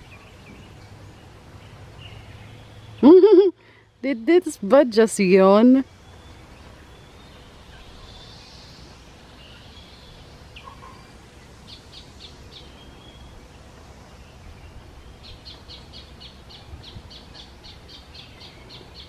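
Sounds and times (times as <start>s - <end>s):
birds chirping: 0.0s - 19.0s
faint outdoor background noise: 0.0s - 19.0s.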